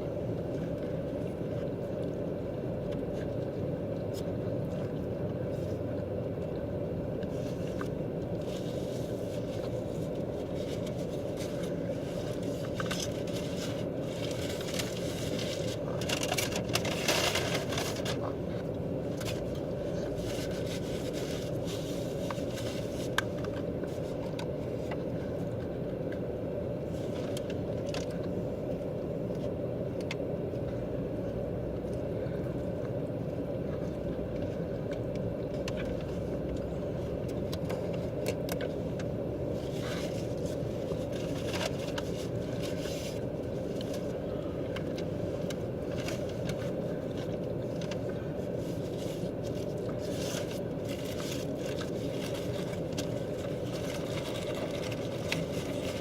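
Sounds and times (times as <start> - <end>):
faint clicks and scrapes: 33.8 - 56.0.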